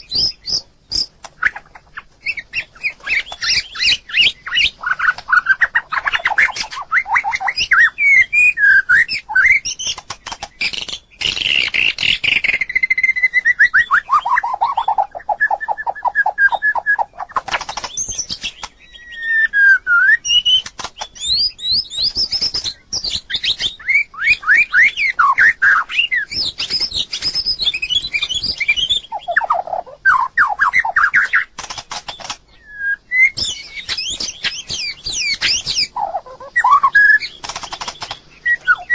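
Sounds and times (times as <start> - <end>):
songbird singing whistled trills: 0.0 - 38.9
bird sharp clicking notes: 8.9 - 12.8, 16.4 - 18.9, 20.4 - 23.7, 30.5 - 32.5, 33.2 - 38.9.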